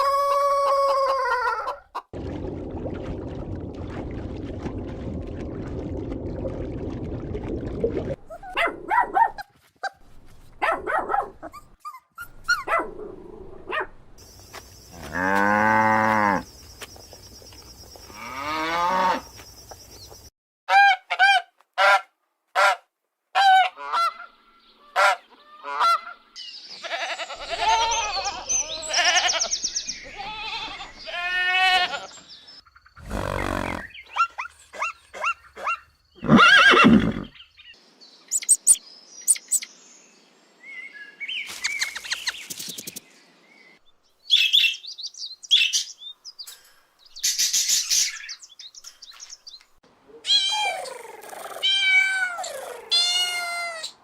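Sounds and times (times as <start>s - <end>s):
high chirps: 38.3s - 39.7s.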